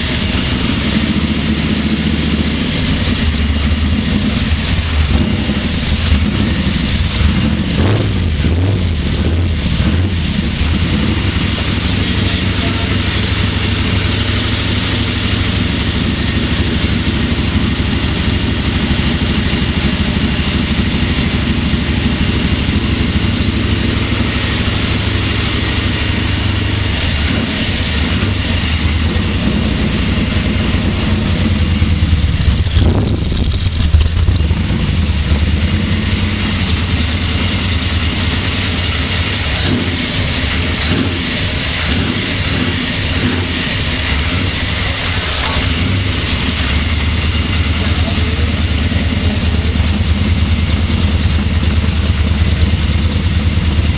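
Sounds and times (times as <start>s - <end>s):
car engine running: 0.0s - 53.9s.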